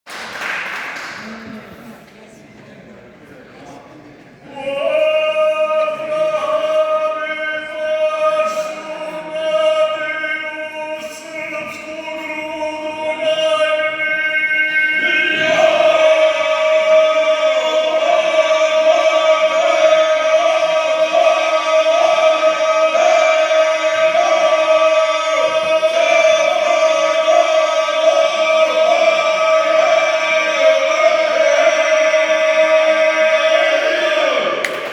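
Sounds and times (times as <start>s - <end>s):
male group singing: 4.5s - 34.9s.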